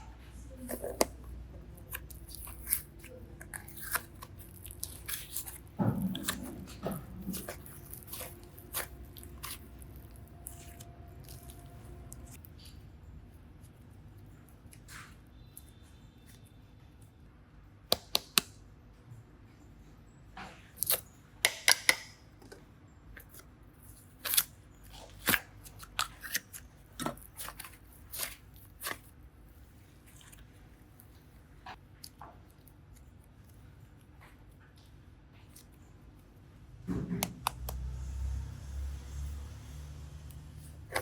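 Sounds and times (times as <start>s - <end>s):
slime and clay crackling: 0.4s - 16.5s, 20.7s - 22.1s, 23.2s - 38.0s.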